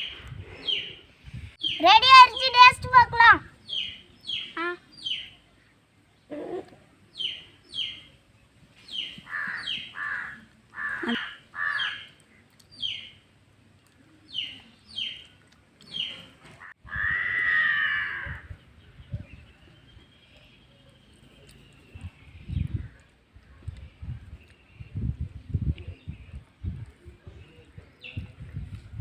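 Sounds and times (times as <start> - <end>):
birds calling: 0.0 - 13.3.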